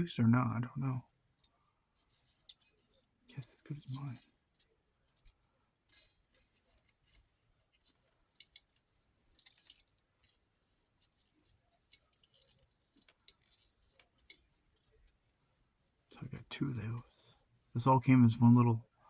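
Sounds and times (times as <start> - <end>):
small objects clicking and clinking: 3.8 - 7.2, 7.8 - 14.6.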